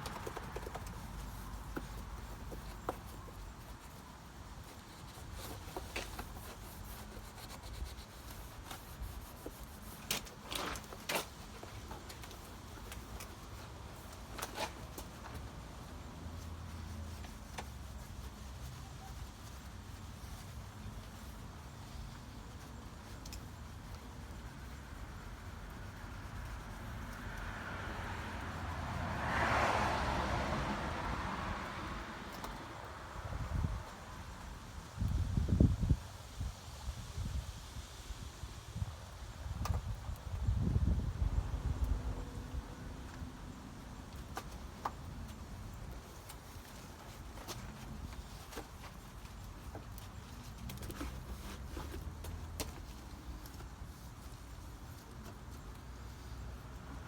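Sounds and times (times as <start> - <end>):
sharp scraping strokes: 0.0 - 15.5
rubbing and handling noises: 0.0 - 28.7, 43.8 - 57.0
vehicle passing by: 25.9 - 33.2.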